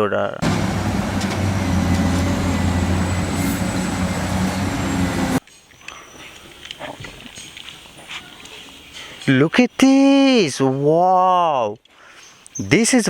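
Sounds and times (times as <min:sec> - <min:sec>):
low engine-like rumble: 0:00.4 - 0:05.4.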